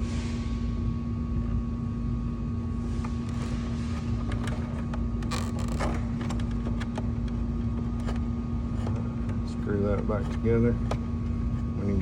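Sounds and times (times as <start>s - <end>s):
steady low hum: 0.0s - 12.0s
cable connector clicking and scraping: 3.3s - 11.7s.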